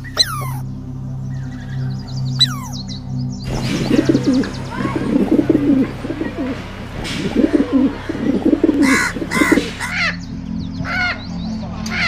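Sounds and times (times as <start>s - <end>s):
pigeons cooing: 0.0s - 0.7s, 1.6s - 2.9s, 3.5s - 10.2s
higher-pitched bird calls: 0.0s - 12.0s.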